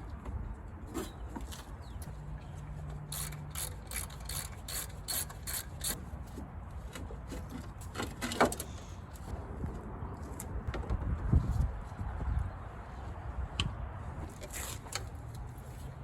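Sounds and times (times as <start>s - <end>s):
ratchet wrench clicking: 3.1s - 6.0s.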